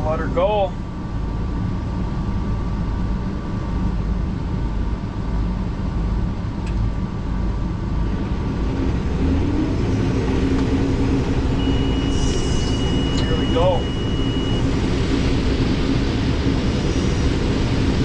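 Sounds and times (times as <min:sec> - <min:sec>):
combine harvester rumble: 0:00.0 - 0:18.0
steady hum: 0:00.0 - 0:18.0.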